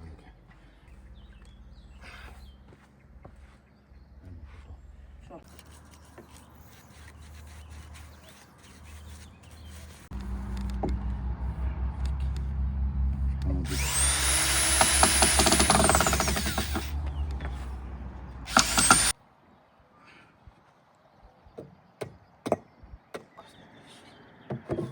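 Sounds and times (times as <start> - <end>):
electric drill driving a screw: 13.7 - 17.4, 18.5 - 19.2.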